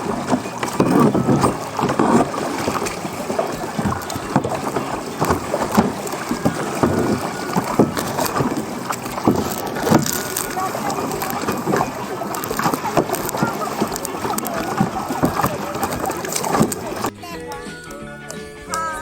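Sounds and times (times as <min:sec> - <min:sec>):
wind buffeting microphone: 0:00.0 - 0:17.1
water splashing around kayak: 0:00.0 - 0:17.2.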